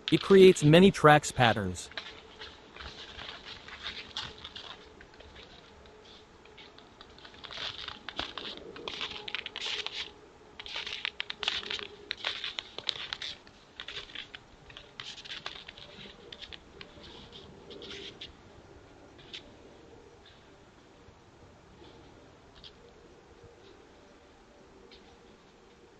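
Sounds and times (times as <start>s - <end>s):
footsteps crunching in snow: 1.9s - 18.2s.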